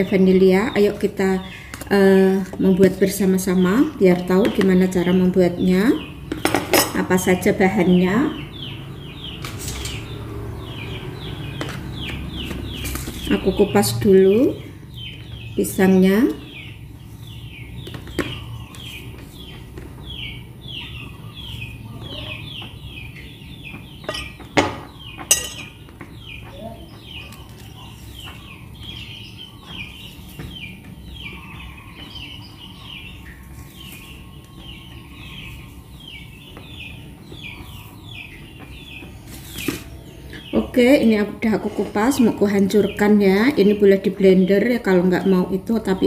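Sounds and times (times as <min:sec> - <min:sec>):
small bird chirping: 0:07.3 - 0:46.0.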